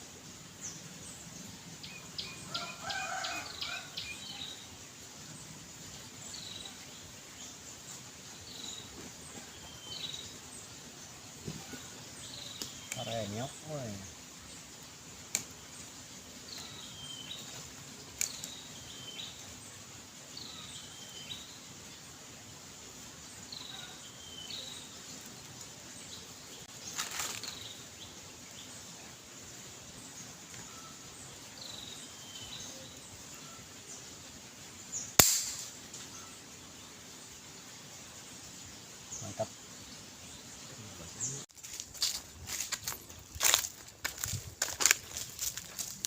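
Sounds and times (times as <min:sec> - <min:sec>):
air rifle shot: 0:35.2 - 0:35.8.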